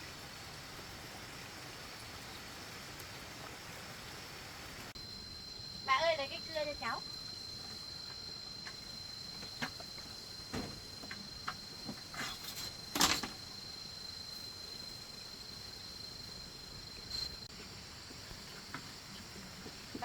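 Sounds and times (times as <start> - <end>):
insects chirring: 0.0 - 20.0
handling knocks and clatters: 9.4 - 13.4.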